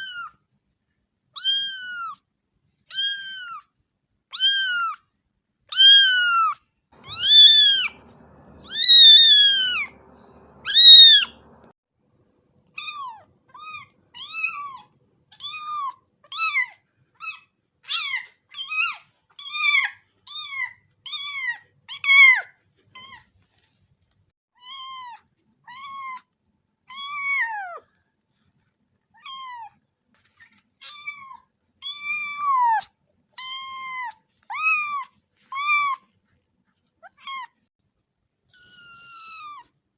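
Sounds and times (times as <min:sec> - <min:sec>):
cat meowing: 0:00.0 - 0:00.3, 0:01.4 - 0:02.2, 0:02.9 - 0:03.6, 0:04.3 - 0:05.0, 0:05.7 - 0:11.6, 0:12.8 - 0:23.2, 0:26.9 - 0:27.8, 0:29.2 - 0:29.7, 0:30.8 - 0:36.0, 0:38.6 - 0:39.7.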